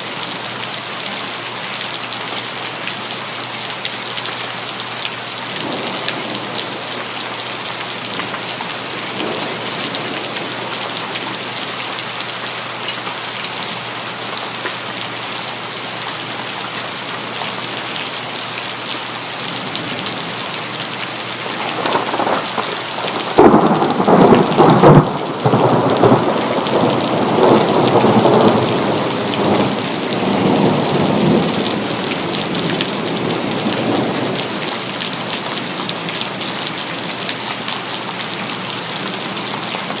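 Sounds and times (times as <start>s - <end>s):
steady rain: 0.0s - 40.0s
thunderclap rolling: 21.4s - 29.8s.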